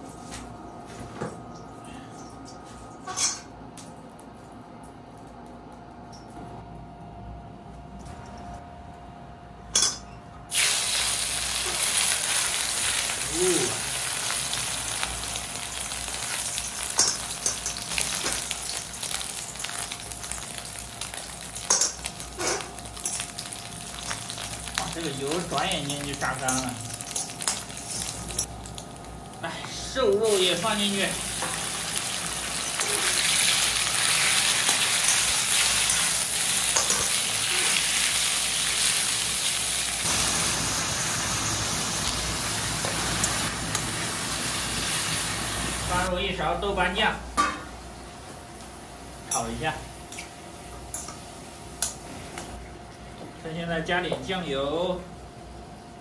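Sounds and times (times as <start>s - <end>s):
oil sizzling in a wok: 10.5s - 46.2s.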